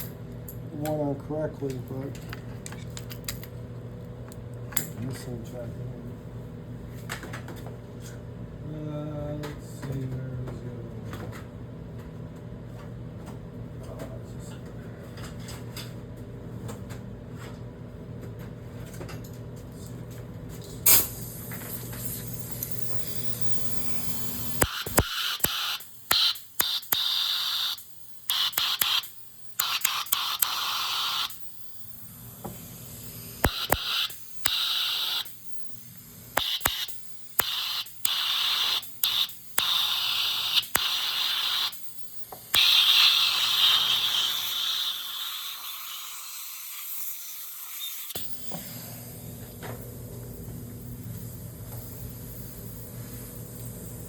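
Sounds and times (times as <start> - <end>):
steady low hum: 0.0 - 45.0, 48.2 - 54.0
air blow gun hissing blasts: 20.9 - 31.4, 32.3 - 35.4, 36.4 - 41.8, 42.5 - 49.4
sharp click: 24.6 - 30.6, 33.4 - 35.7, 36.4 - 42.8.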